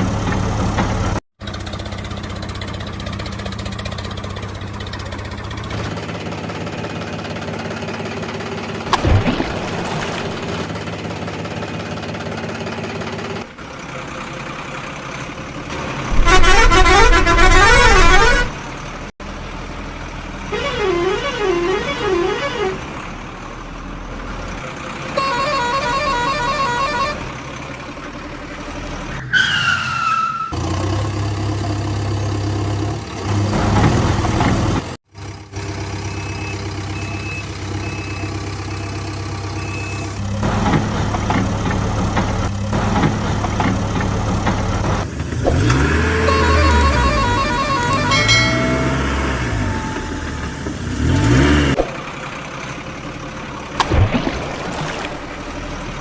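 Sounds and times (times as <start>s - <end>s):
truck engine running: 0.0s - 29.2s, 30.6s - 56.0s
warbling truck horn blasts: 16.1s - 18.6s, 20.5s - 23.0s, 25.1s - 27.4s, 46.0s - 51.8s
short falling tone: 46.2s - 51.9s.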